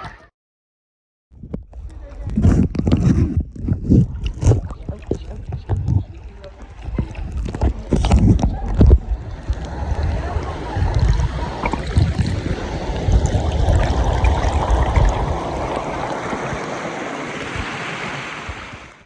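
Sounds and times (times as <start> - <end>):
low rumbling knocks on microphone: 1.4 - 15.4
river water rushing and splashing: 6.2 - 19.0.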